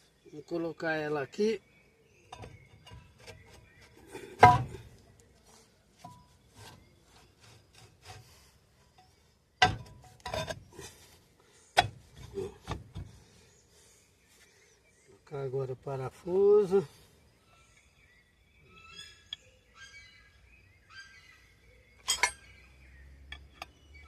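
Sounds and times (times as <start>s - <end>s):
ringing metal clanks: 22.0s - 22.6s.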